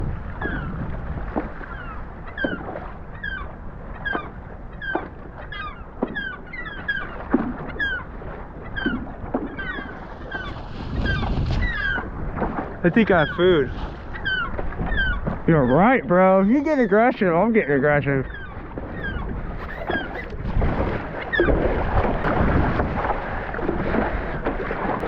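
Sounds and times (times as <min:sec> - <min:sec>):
gull alarm calls: 0:00.3 - 0:00.8, 0:01.6 - 0:12.1, 0:12.9 - 0:20.4.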